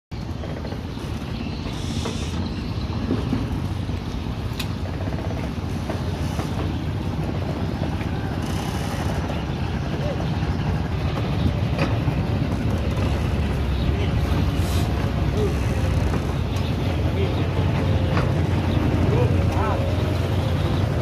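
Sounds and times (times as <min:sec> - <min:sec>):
speedboat engine running: 0:00.1 - 0:21.0
water noise: 0:00.1 - 0:21.0.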